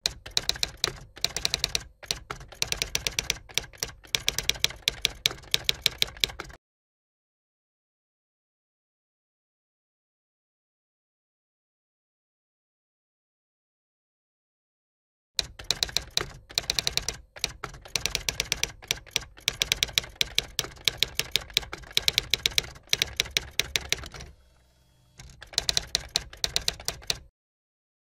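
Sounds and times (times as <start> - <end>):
keyboard typing clicks: 0.0 - 6.6, 15.4 - 24.4, 25.2 - 27.3.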